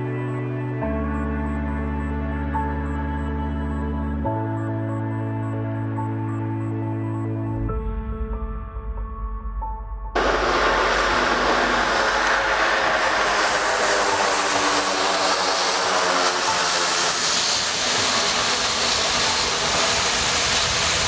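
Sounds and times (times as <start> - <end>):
small aircraft engines running: 10.2 - 21.0.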